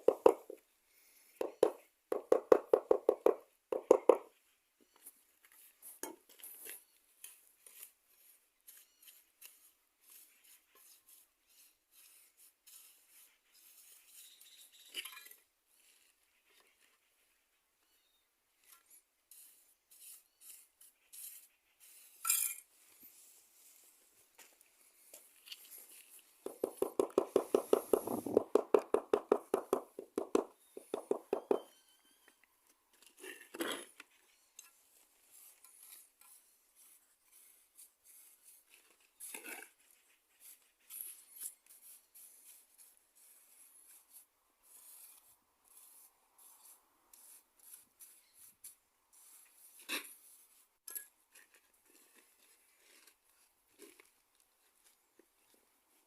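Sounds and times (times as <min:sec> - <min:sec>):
hand tools clinking and scraping: 0:22.1 - 0:23.2, 0:50.8 - 0:54.2
rapid tapping: 0:26.4 - 0:31.6.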